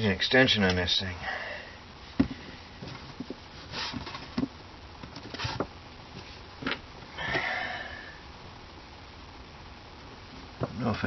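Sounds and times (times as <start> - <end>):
short rustling scrapes: 2.9 - 4.3.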